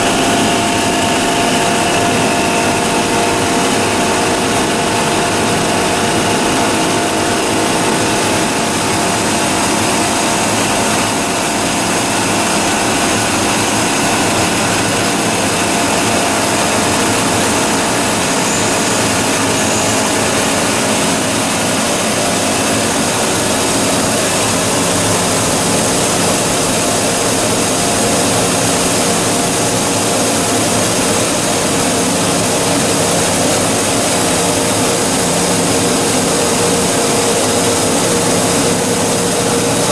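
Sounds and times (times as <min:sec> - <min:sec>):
recycling machine running: 0:00.0 - 0:39.9.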